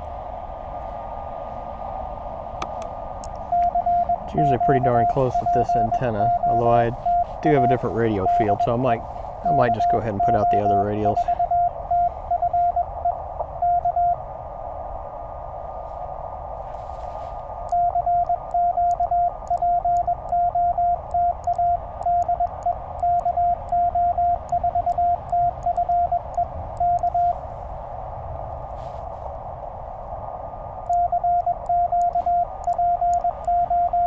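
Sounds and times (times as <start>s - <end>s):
faint keying clicks: 2.6s - 8.7s, 17.6s - 27.3s, 30.8s - 34.0s
radio band hiss: 2.6s - 13.0s, 31.1s - 33.7s
morse code tone: 2.6s - 14.2s, 17.7s - 27.4s, 30.9s - 34.0s.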